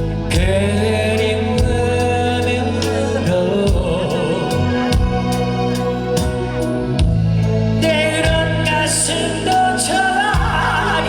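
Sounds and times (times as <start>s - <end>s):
live rock band playing: 0.0s - 11.0s
person singing: 0.0s - 11.0s
steady drum beat: 0.0s - 11.0s.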